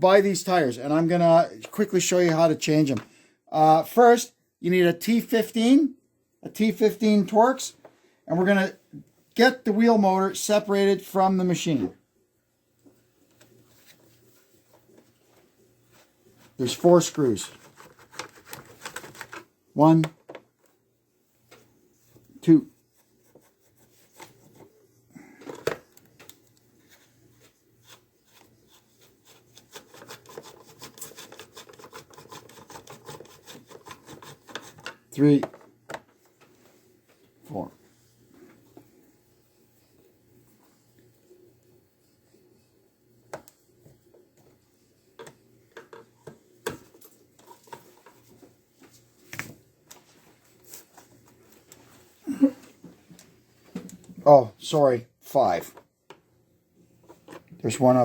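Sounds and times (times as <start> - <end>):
screwdriver scratching and clicking: 17.5 - 19.4, 27.8 - 35.0.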